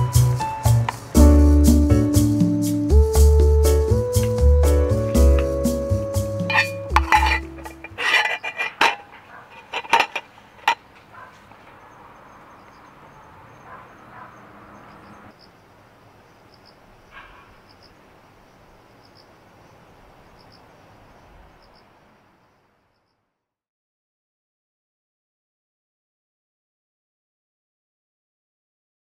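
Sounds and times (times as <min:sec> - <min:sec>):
faint outdoor hiss: 0:00.0 - 0:23.6
insect chirping: 0:00.1 - 0:01.6, 0:05.2 - 0:23.4
spoon clinking on metal dishes: 0:06.4 - 0:10.8.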